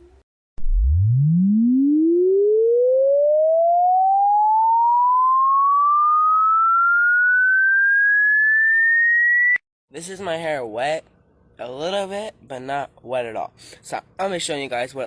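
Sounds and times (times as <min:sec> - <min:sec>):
electronic tone sweeping upward: 0:00.6 - 0:09.6.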